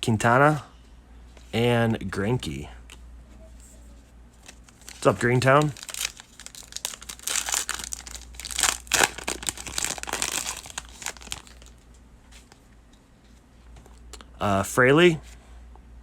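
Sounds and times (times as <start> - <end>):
foil wrapper crinkling and tearing: 4.4 - 11.8.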